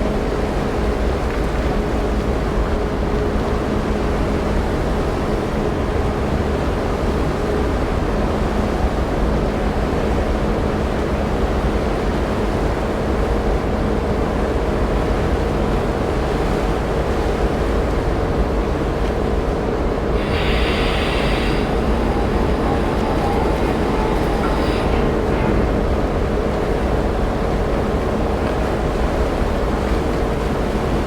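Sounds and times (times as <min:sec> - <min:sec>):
wind and sea rushing: 0:19.0 - 0:31.0
ship engines rumbling: 0:19.1 - 0:31.0.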